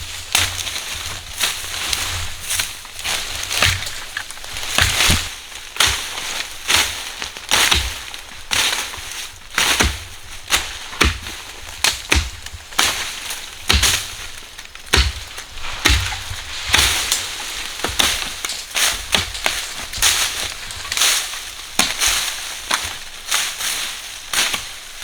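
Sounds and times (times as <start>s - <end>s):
hand tool sharp strikes: 3.5s - 6.1s, 14.9s - 17.2s.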